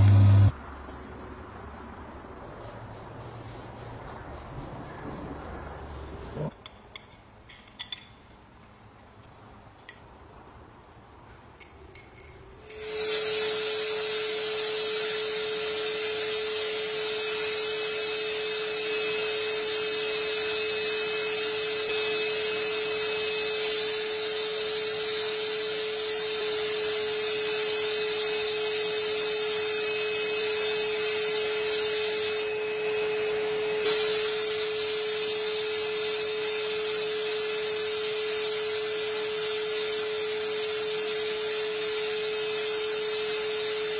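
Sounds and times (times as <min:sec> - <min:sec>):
machine hiss: 0:00.0 - 0:00.5, 0:12.7 - 0:32.5, 0:33.2 - 0:43.9
small machine humming: 0:00.0 - 0:00.5, 0:12.6 - 0:43.9.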